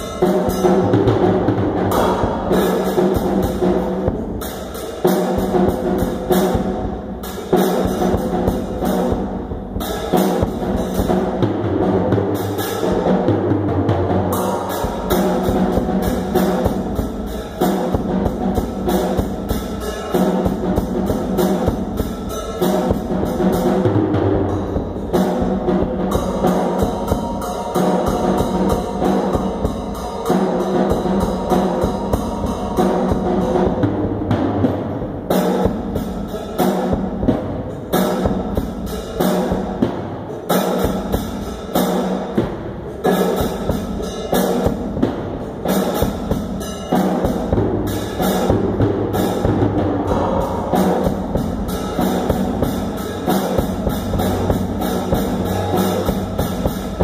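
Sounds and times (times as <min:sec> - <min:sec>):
drum kit playing: 0:00.0 - 0:57.0
pitched instruments and bass line: 0:42.3 - 0:57.0.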